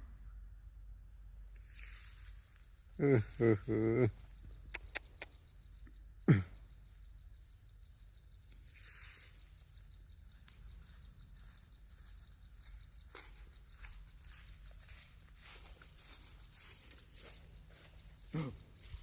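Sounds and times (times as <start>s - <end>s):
insect trilling: 1.4s - 19.0s.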